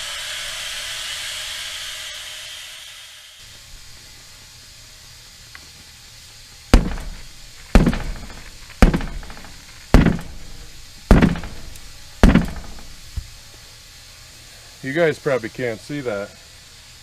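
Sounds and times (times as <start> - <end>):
heavy strikes on steel wheel rim: 6.8 - 13.3.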